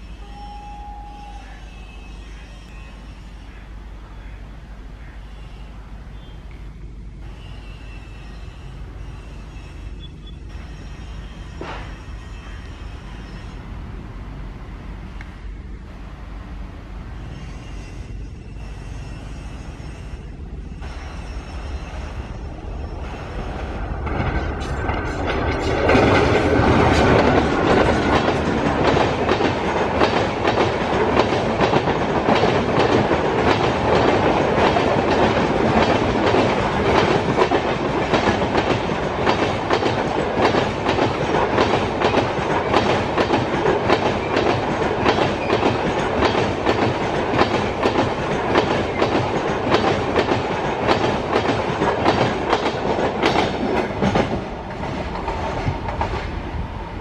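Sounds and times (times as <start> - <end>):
train passing at speed: 0.0 - 57.0
wheels clacking over rail joints: 23.4 - 57.0.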